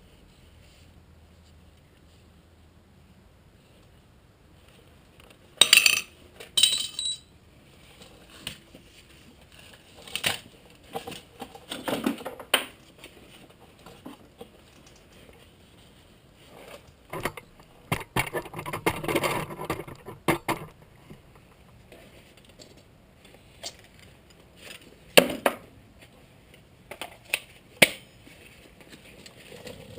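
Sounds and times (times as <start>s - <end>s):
metal tools clanking: 6.6s - 7.3s.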